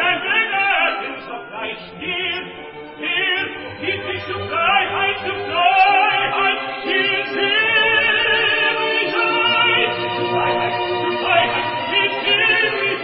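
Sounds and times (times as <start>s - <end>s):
operatic tenor singing: 0.0s - 13.0s
orchestral accompaniment: 0.0s - 13.0s.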